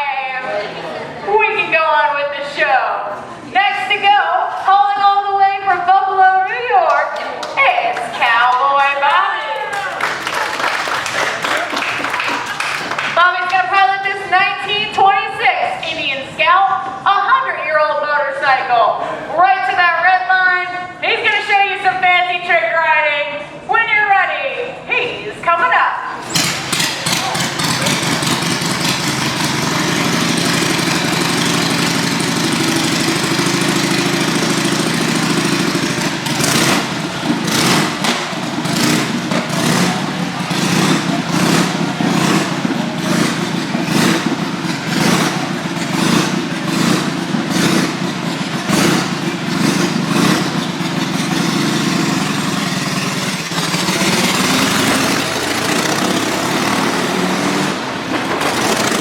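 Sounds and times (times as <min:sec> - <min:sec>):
motorcycle engine running: 0:26.2 - 0:59.0.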